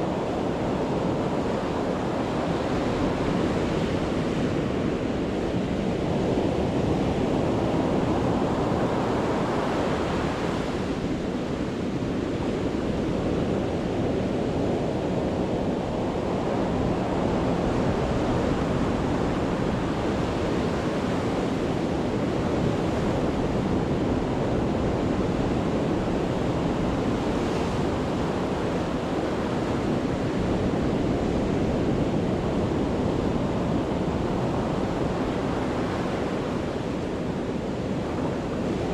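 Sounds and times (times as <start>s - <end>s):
sea waves breaking on shore: 15.8s - 38.9s.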